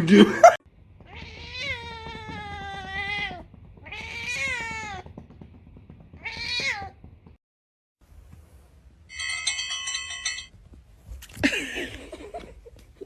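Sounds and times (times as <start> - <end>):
cat meowing: 1.1 - 5.1, 6.2 - 7.0.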